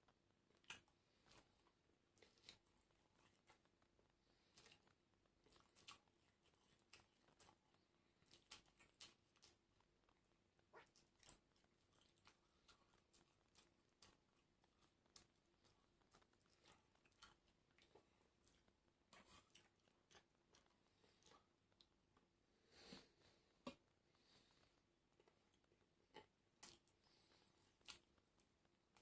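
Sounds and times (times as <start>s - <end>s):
person chewing and crunching: 0.5s - 22.2s, 23.6s - 29.0s.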